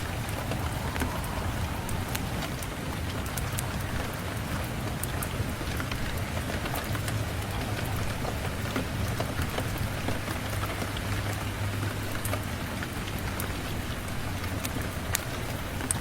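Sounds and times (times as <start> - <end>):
low rumble: 0.0 - 6.4
rain falling: 0.0 - 16.0.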